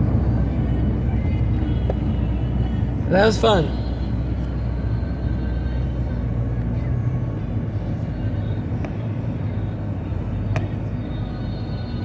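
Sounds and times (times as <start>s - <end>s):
car road and engine drone: 0.0s - 12.0s.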